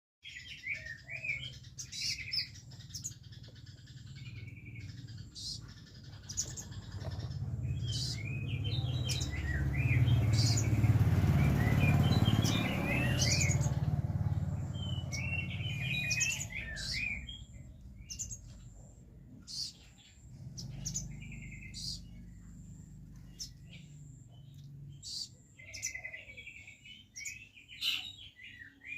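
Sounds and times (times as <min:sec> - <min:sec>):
songbird chirping and trilling: 0:00.2 - 0:28.9
low rumbling noise: 0:04.1 - 0:19.4.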